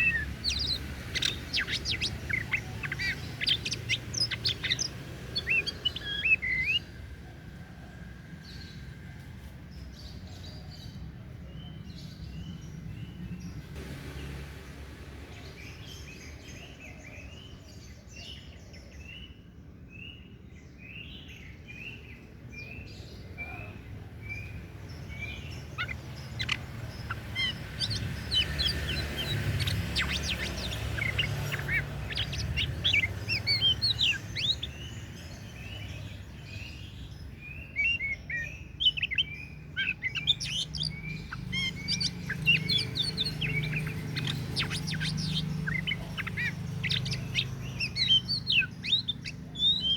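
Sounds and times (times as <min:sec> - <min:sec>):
bird singing whistled notes: 0:00.0 - 0:06.9, 0:20.0 - 0:49.9.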